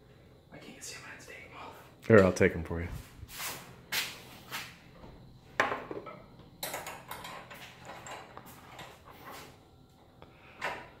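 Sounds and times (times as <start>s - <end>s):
metal tools clinking: 6.6s - 9.0s.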